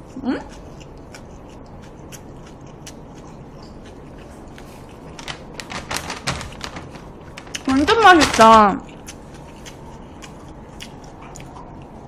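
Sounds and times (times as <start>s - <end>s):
chewing mouth clicks and smacks: 0.0s - 5.3s, 8.9s - 12.0s.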